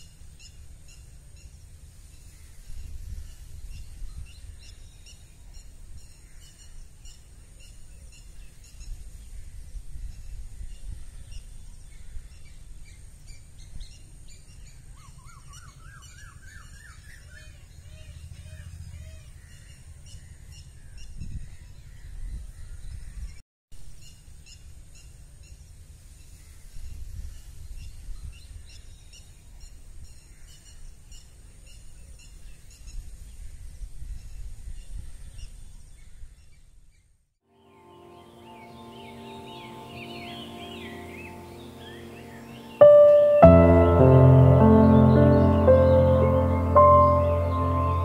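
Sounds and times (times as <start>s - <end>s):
wind rumble on microphone: 21.0s - 23.4s
small birds chirping and singing: 37.7s - 48.0s.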